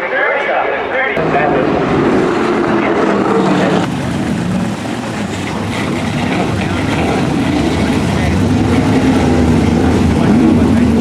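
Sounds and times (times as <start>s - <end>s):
racing car engines: 0.1s - 11.0s.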